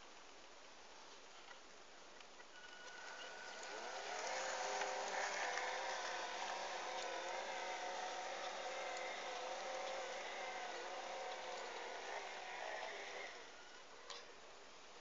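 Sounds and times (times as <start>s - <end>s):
toy electric motor whining: 2.6s - 14.3s.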